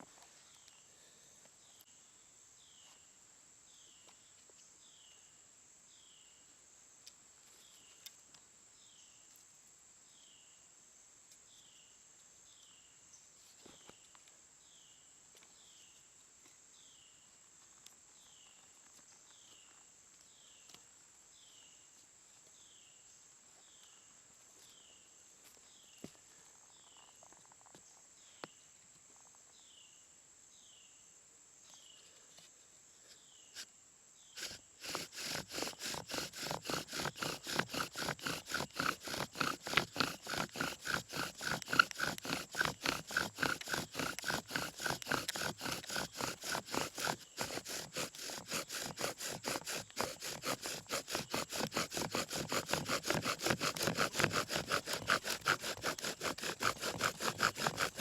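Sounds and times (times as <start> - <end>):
insect hiss: 0.0 - 34.8
bow drill squeaking: 34.4 - 58.0.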